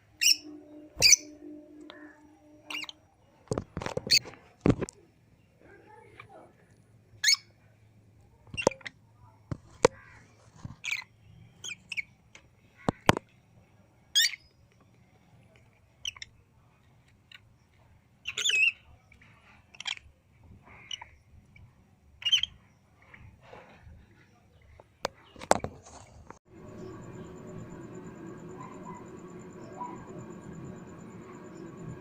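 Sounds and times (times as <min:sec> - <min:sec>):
lovebirds squawking and chirping: 0:02.0 - 0:03.0.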